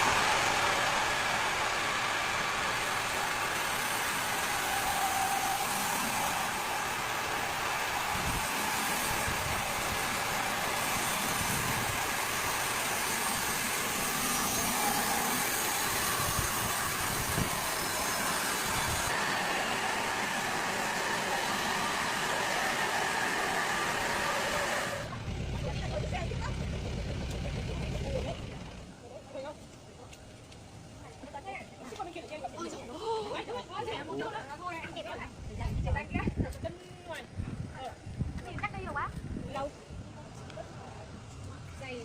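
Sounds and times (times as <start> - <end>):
chainsaw running: 0.0 - 28.8.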